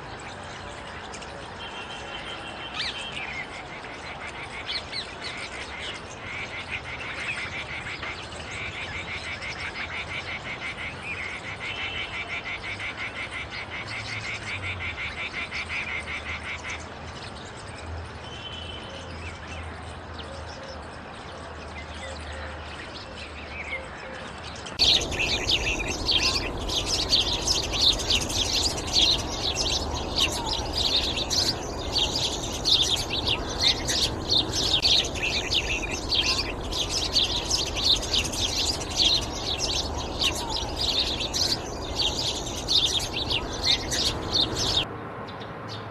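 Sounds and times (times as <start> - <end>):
songbird trill: 21.8 - 44.9
overlapping bird chirping: 24.8 - 44.9.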